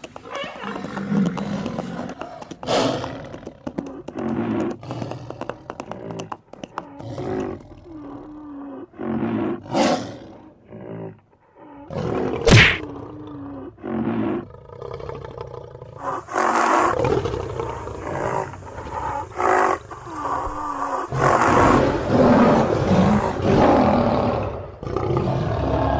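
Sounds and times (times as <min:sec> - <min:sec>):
lion roaring: 0:06.9 - 0:25.9
sharp crack: 0:12.4 - 0:12.8.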